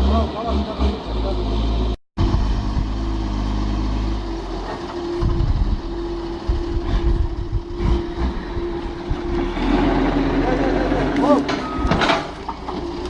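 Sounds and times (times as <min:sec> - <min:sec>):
heavy vehicle engine running: 0:00.0 - 0:13.0
knocks and clatter: 0:11.4 - 0:13.0.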